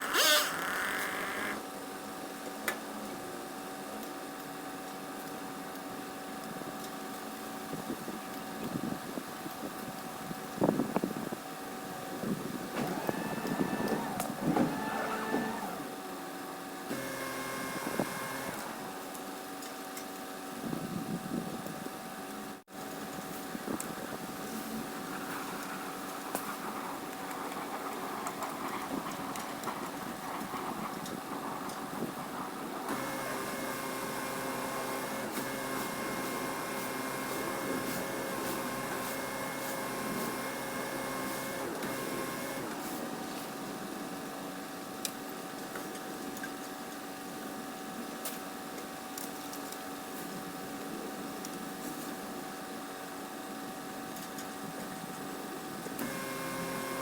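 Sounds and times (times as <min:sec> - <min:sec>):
machine motor droning: 0:12.2 - 0:19.2, 0:32.4 - 0:43.5, 0:56.0 - 0:57.0.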